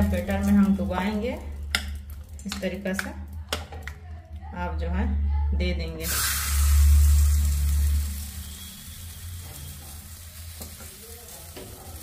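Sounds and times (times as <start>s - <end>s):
leaf frying in oil: 0.0s - 3.5s, 6.0s - 12.0s.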